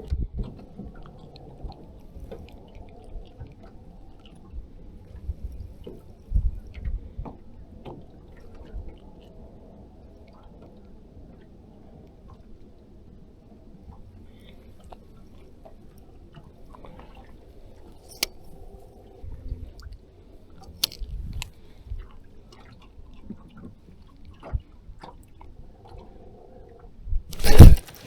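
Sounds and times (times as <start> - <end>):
handling clicks: 27.3 - 28.0.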